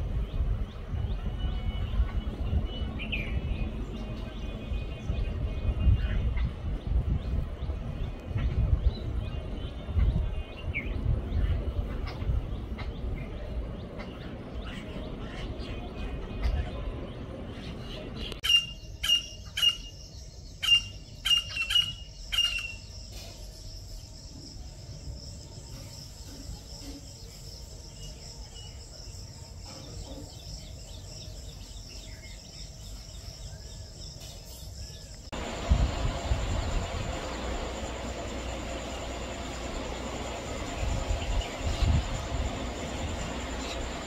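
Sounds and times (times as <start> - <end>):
high insect drone: 20.5 - 44.0
low rumble: 35.3 - 44.0.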